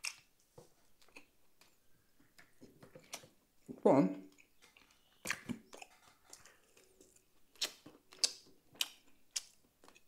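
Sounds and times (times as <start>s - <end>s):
chewing and mouth smacks: 1.0s - 3.3s, 4.3s - 10.0s.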